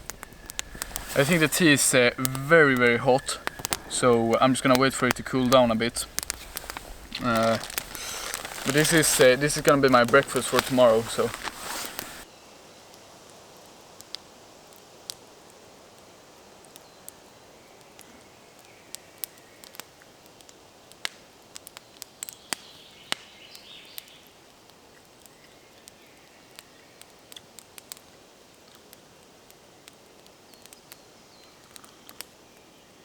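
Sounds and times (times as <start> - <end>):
low hiss: 0.0 - 21.5
campfire crackling: 0.0 - 33.0.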